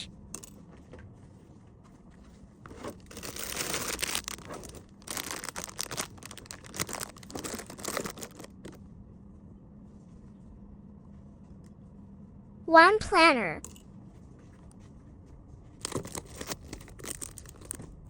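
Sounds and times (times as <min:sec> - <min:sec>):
packaging crinkling and rustling: 0:02.7 - 0:08.8, 0:15.8 - 0:18.0.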